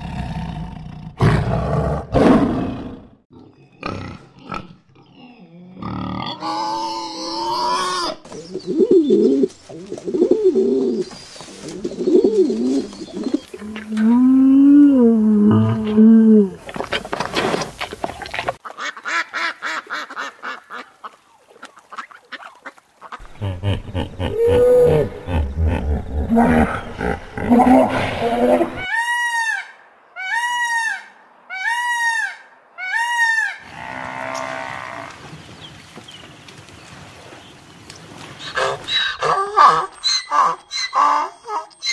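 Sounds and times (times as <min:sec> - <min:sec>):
bear deep humming call: 0:13.6 - 0:16.6
rushing water: 0:16.6 - 0:25.4, 0:34.6 - 0:39.3
peacock calling: 0:38.4 - 0:41.9.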